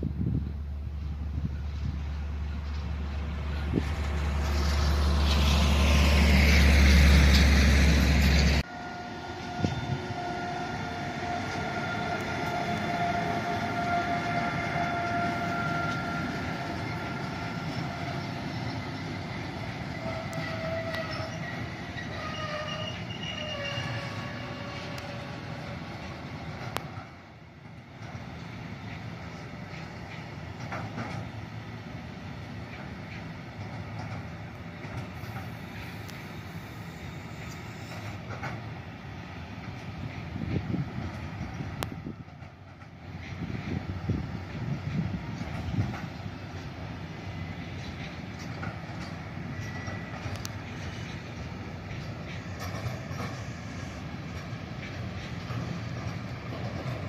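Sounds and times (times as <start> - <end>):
freight train rolling past: 0.0 - 57.0
rail vehicle low rumble: 0.0 - 57.0
rail joint clicks: 0.1 - 57.0
train wheels squealing: 4.4 - 27.1, 32.7 - 38.6, 45.2 - 57.0.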